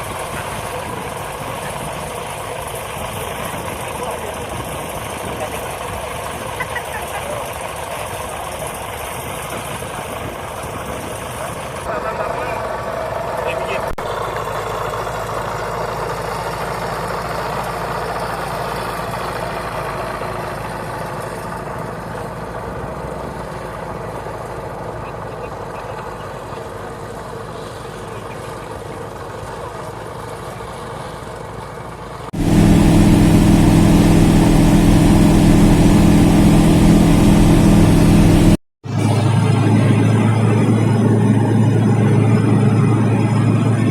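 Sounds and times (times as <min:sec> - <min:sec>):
light aircraft engine: 0:00.0 - 0:43.9
steady low drone: 0:32.4 - 0:43.9.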